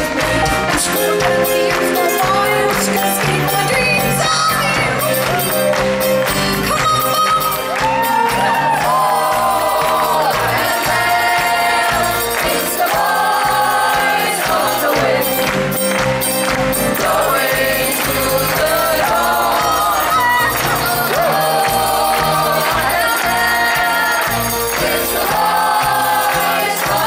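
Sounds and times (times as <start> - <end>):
live band playing: 0.0 - 27.0
women singing together: 8.4 - 15.5, 16.9 - 27.0.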